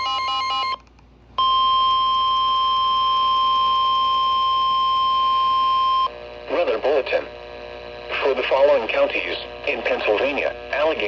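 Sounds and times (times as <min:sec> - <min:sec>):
high warning alarm beep: 0:01.4 - 0:06.1.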